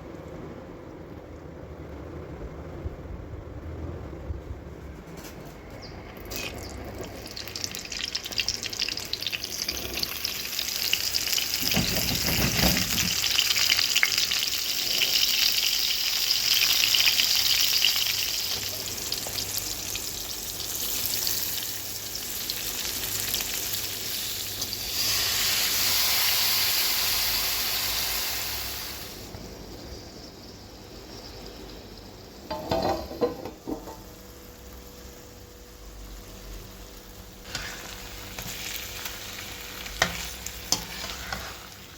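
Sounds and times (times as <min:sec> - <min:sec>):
vegetables sizzling in oil: 0:05.8 - 0:41.9
utensil knocking against pan: 0:32.5 - 0:34.0.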